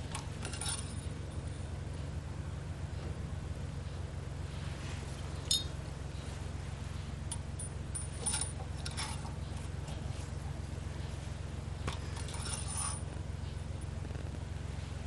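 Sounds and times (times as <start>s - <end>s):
steady low hum: 0.0s - 15.0s
light metallic clinks: 5.4s - 5.8s, 7.3s - 10.0s.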